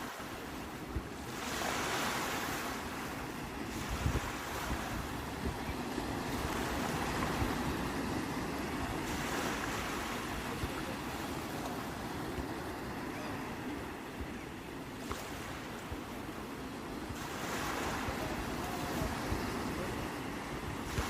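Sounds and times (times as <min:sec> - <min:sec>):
sea waves washing on shore: 0:00.0 - 0:21.0
wind rumble on microphone: 0:00.4 - 0:13.0, 0:16.9 - 0:21.0.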